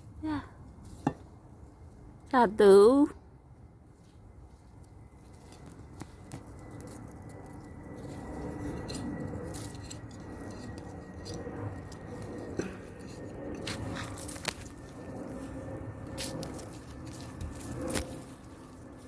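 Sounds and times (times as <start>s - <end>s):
soil digging rustle and scrape: 3.9s - 19.0s.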